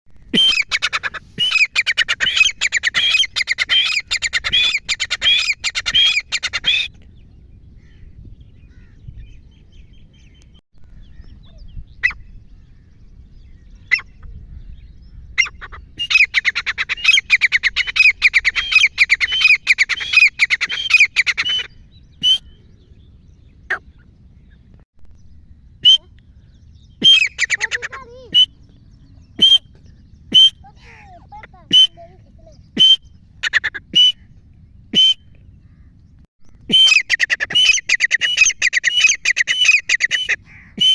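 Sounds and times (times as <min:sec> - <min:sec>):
francolin calling: 0:00.3 - 0:06.9, 0:15.4 - 0:22.6, 0:26.9 - 0:28.6, 0:36.6 - 0:40.9.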